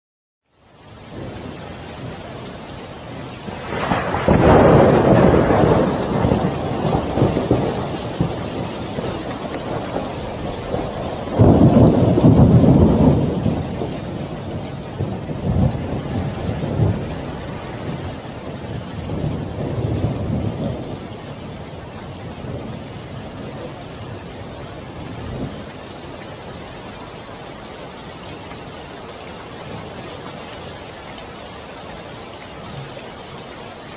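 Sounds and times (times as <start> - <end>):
rain falling: 0.4 - 33.9
thunder rumble: 1.1 - 26.8.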